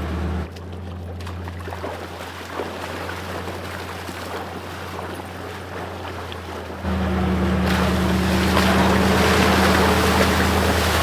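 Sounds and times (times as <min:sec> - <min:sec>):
vehicle engine idling: 0:00.0 - 0:01.5, 0:06.0 - 0:11.0
river water rushing and splashing: 0:01.7 - 0:11.0.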